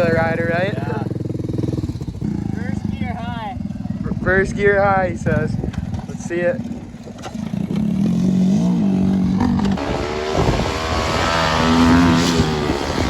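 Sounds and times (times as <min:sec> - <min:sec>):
off-road engine revving hard: 0:07.4 - 0:13.0.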